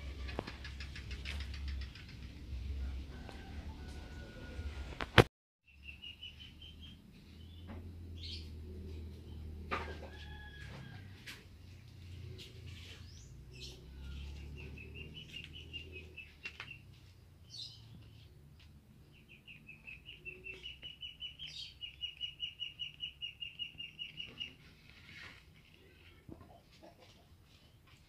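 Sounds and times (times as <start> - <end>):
bird chirping rapidly: 19.2 - 24.6.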